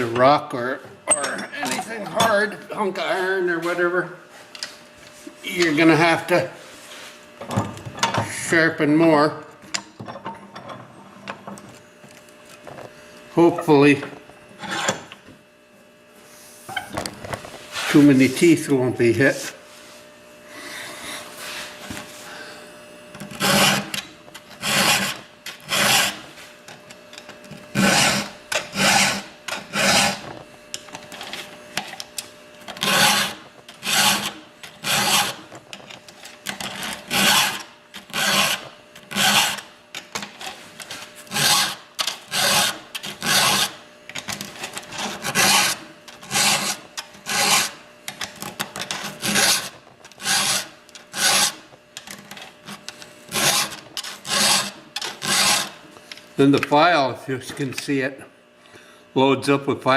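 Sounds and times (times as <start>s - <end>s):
file rasping on chainsaw chain: 14.6s - 15.0s, 23.2s - 24.0s, 24.6s - 26.2s, 27.7s - 30.2s, 32.8s - 35.4s, 36.4s - 39.7s, 41.3s - 55.8s.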